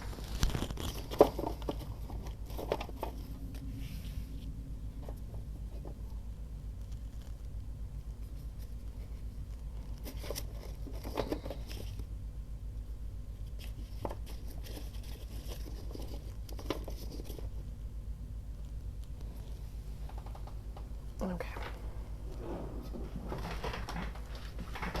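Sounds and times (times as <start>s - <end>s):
paper rustling and crinkling: 0.0s - 5.9s, 8.2s - 12.1s, 13.5s - 17.6s, 22.3s - 25.0s
steady low hum: 0.0s - 25.0s.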